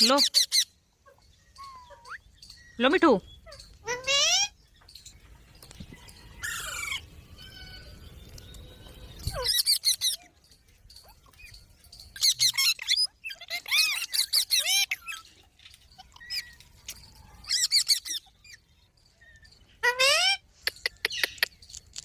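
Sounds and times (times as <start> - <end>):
parrots squawking: 0.0 - 2.2, 3.4 - 4.6, 6.4 - 8.0, 9.2 - 10.2, 12.2 - 15.3, 17.4 - 18.6, 19.8 - 21.4.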